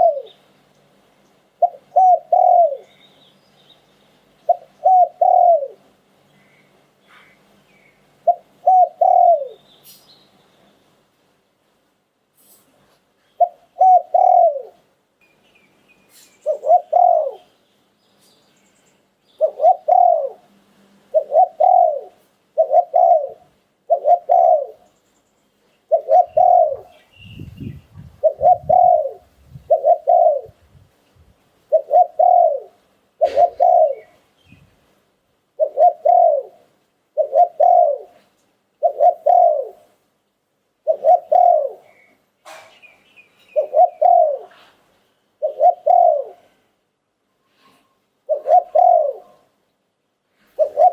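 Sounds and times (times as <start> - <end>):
dove cooing: 0.0 - 0.4, 1.6 - 2.9, 4.5 - 5.9, 8.2 - 9.6, 13.4 - 14.8, 16.4 - 17.5, 19.4 - 20.5, 21.1 - 24.8, 25.9 - 30.8, 31.7 - 34.2, 35.6 - 39.9, 40.8 - 42.1, 43.5 - 44.8, 45.4 - 46.7, 47.6 - 49.6, 50.4 - 50.9.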